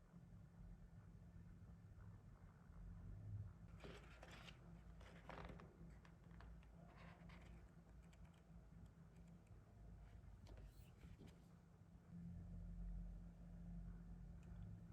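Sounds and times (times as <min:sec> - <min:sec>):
faint rustling handling noise: 0:09.2 - 0:11.7.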